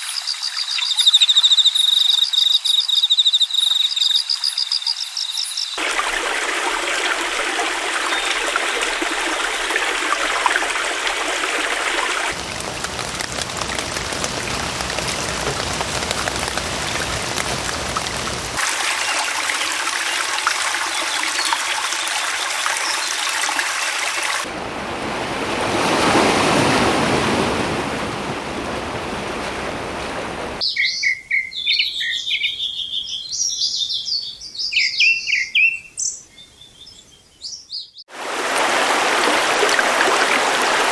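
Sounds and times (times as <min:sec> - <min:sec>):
rushing water: 0:05.8 - 0:30.6, 0:38.1 - 0:40.9
birds chirping: 0:12.3 - 0:23.6, 0:30.6 - 0:38.0.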